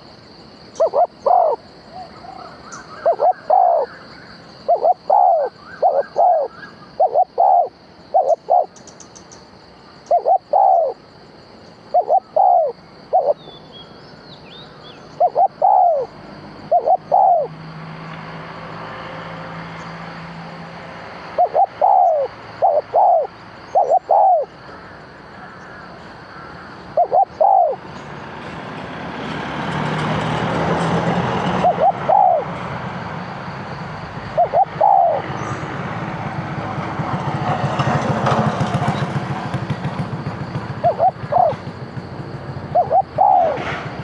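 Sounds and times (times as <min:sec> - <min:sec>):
dove cooing: 0:00.8 - 0:04.0, 0:04.6 - 0:08.8, 0:10.1 - 0:11.0, 0:11.9 - 0:13.5, 0:15.2 - 0:17.6, 0:21.4 - 0:24.5, 0:26.9 - 0:27.8, 0:31.2 - 0:32.7, 0:34.2 - 0:35.6, 0:40.6 - 0:41.8, 0:42.6 - 0:44.0.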